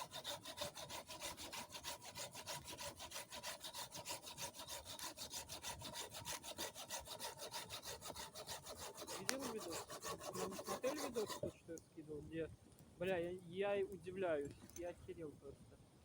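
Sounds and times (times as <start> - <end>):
saw cutting wood: 0.0 - 11.6.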